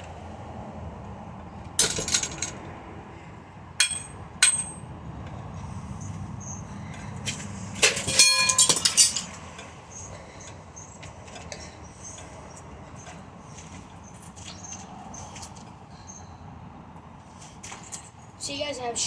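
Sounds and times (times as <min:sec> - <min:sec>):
metal ceiling fan being smashed: 0:01.8 - 0:02.6, 0:07.8 - 0:09.4.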